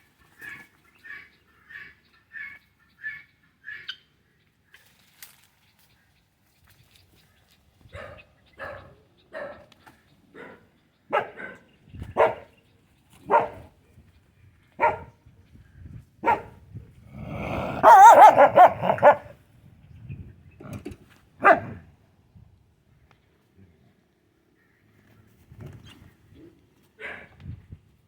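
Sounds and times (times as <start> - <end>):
dog barking: 7.9 - 9.7, 10.4 - 12.5, 13.3 - 13.7, 14.8 - 15.1, 16.2 - 16.6, 17.4 - 19.3, 21.4 - 21.8, 27.0 - 27.3.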